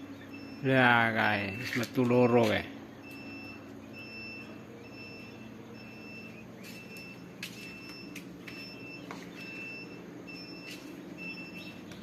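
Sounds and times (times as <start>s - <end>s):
low machine hum: 0.0s - 12.0s
high electronic beeping: 3.0s - 11.9s.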